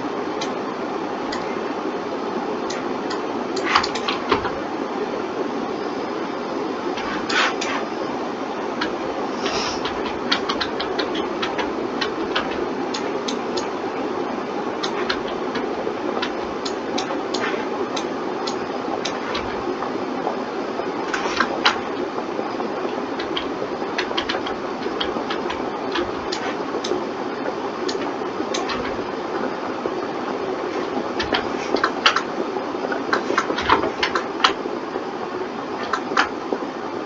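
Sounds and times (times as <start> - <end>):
fan-like hum: 0.0 - 37.0
mouse and keyboard clicks: 2.7 - 4.5, 8.8 - 13.7, 14.8 - 19.6, 21.1 - 21.9, 23.2 - 27.0, 27.9 - 29.0, 30.8 - 32.3, 32.9 - 34.6, 35.8 - 36.3.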